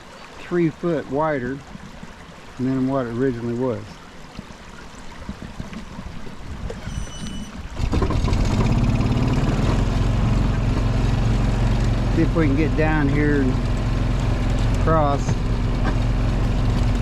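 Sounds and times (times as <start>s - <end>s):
brief high tone: 6.8s - 7.6s
atv engine starting and idling: 7.7s - 17.0s.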